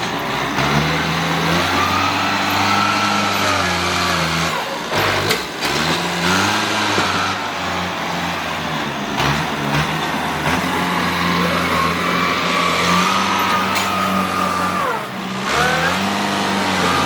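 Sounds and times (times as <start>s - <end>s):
work vehicle engine revving: 0.0s - 17.0s.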